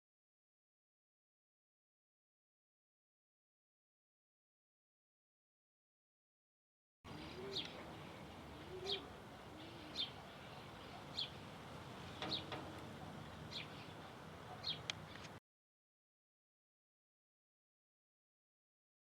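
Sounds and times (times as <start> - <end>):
low bird coos: 7.1 - 15.3
high bird chirps: 7.2 - 11.4.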